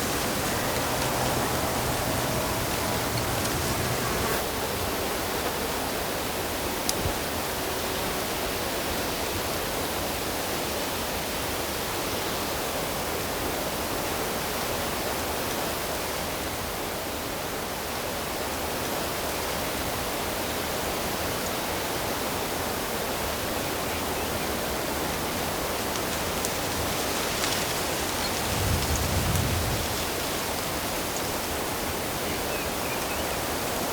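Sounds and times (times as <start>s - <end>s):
flowing water rushing: 0.0s - 4.4s.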